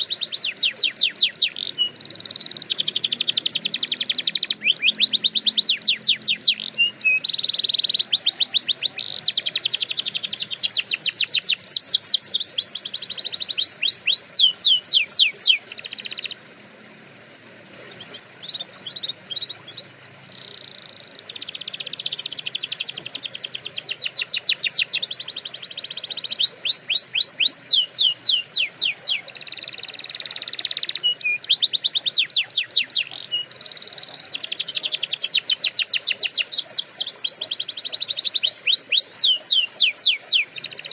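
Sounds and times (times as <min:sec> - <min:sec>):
canary singing trills: 0:00.0 - 0:17.2, 0:17.8 - 0:40.9.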